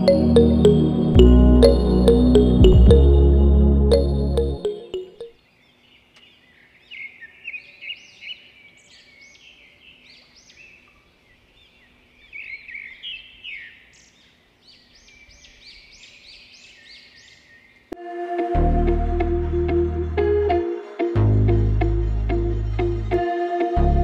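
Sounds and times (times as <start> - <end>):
songbirds chirping: 5.4 - 18.0.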